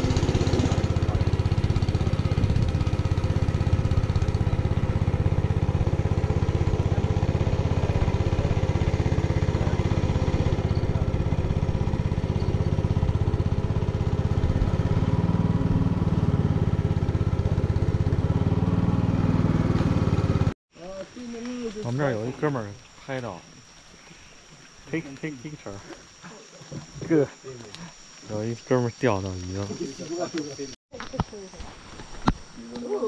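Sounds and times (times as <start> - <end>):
small boat motor running: 0.0 - 20.6.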